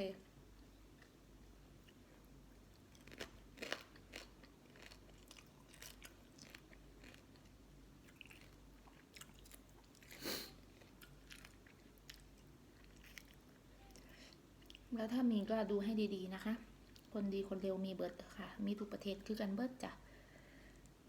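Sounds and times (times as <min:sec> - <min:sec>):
person chewing and crunching food: 0:00.6 - 0:14.9.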